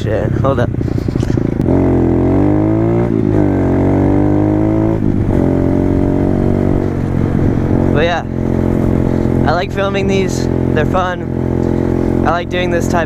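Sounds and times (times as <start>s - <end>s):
pit bike engine revving: 0.6s - 13.0s.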